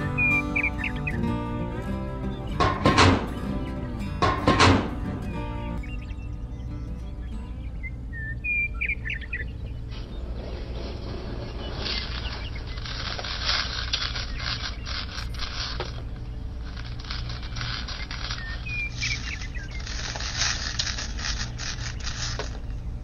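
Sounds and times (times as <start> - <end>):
birds chirping: 0.0 - 23.0
rubber belt scraping and rustling: 9.9 - 22.8.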